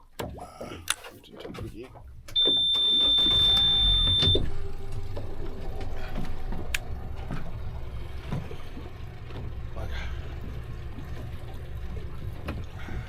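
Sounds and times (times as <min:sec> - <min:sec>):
boat motor running: 0:01.9 - 0:13.0
high-pitched electronic beep: 0:02.4 - 0:04.4.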